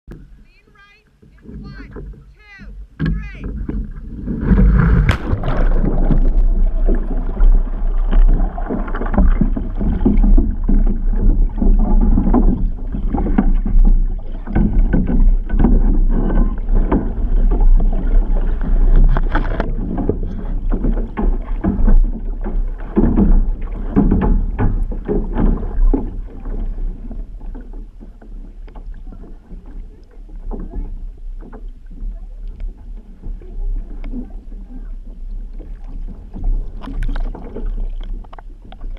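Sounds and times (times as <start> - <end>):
water rushing and splashing: 0.2 - 38.9.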